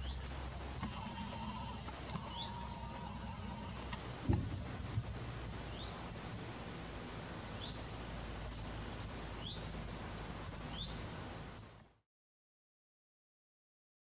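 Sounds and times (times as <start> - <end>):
outdoor background noise: 0.0 - 12.0
small bird rising calls: 0.8 - 4.2
low thump: 4.2 - 5.1.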